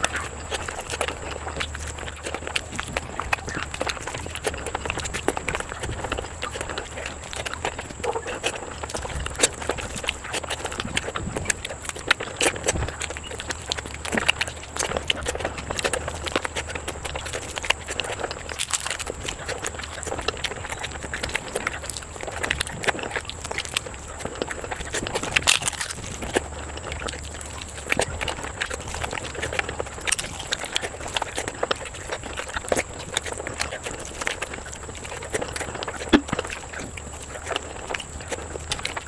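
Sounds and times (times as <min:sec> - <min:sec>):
chewing and wet mouth smacks: 0:00.0 - 0:39.0.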